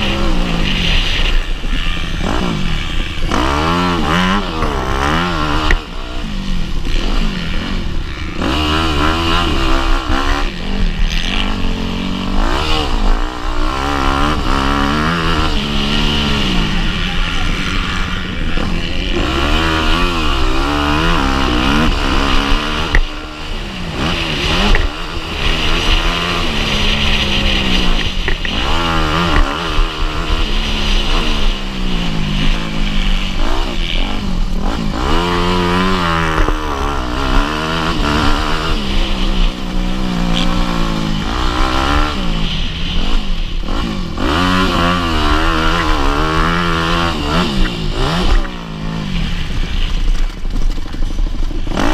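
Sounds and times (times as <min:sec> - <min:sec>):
motocross bike engine revving: 0:00.0 - 0:51.9.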